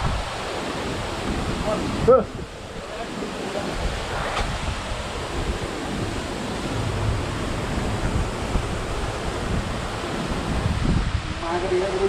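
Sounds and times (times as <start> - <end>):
waterfall rushing: 0.0 - 12.0
wind buffeting microphone: 0.0 - 12.0.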